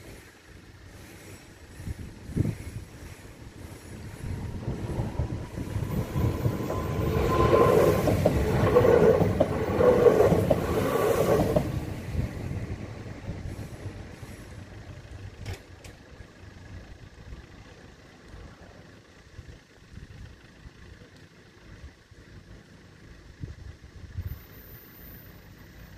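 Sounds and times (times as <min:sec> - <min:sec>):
train passing: 0:00.9 - 0:15.4.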